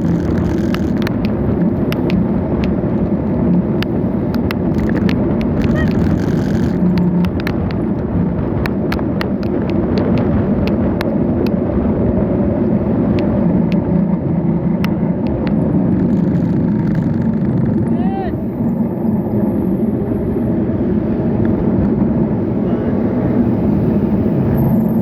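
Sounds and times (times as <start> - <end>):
bicycle clicks and rattles: 0.0 - 11.6, 14.8 - 17.9
road rumble: 0.0 - 25.0
wind rush: 0.0 - 25.0.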